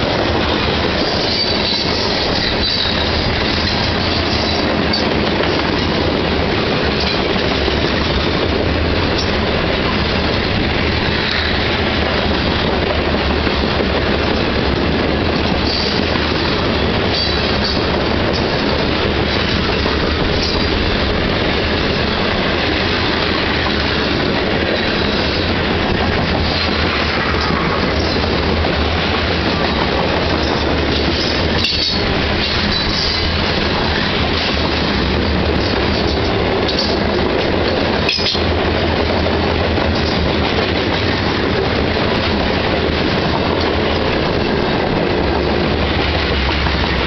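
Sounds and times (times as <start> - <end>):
freight train wheels clattering: 0.0 - 47.0
high-pitched wheel squeals: 1.1 - 3.2.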